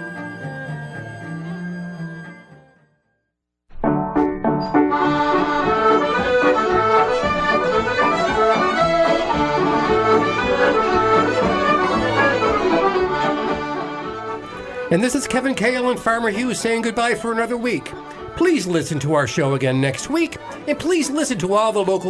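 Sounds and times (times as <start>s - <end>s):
traditional music with accordion: 4.8s - 21.2s.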